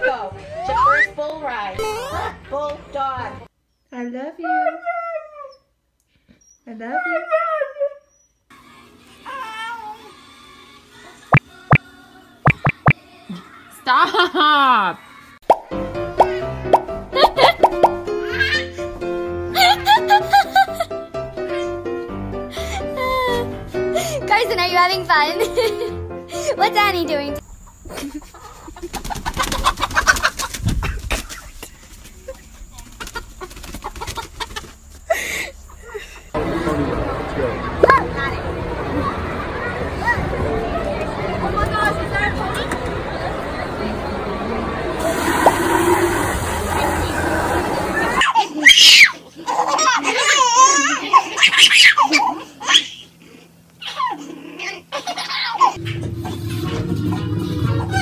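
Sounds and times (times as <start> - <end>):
baby laughing and squealing: 18.2 - 18.8, 48.0 - 53.1, 53.8 - 55.8.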